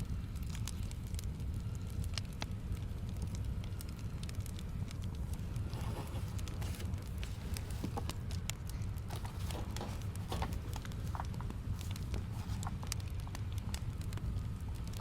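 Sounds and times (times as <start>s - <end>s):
fire low rumble: 0.0s - 15.0s
wood fire crackling: 0.0s - 15.0s.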